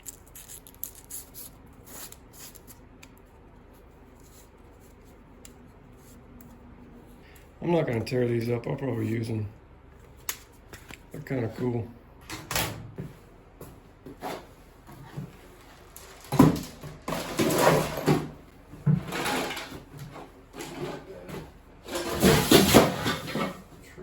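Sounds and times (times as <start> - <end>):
objects rustling and knocking: 12.9 - 23.8.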